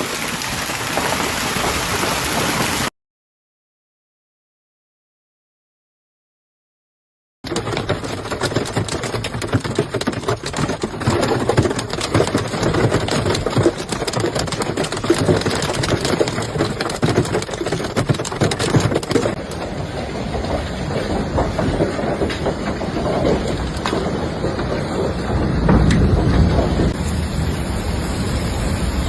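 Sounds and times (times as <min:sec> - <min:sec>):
hailstones knocking: 0:00.0 - 0:02.9, 0:07.5 - 0:27.3
roar of falling ice and rain: 0:00.0 - 0:02.9, 0:07.5 - 0:29.0.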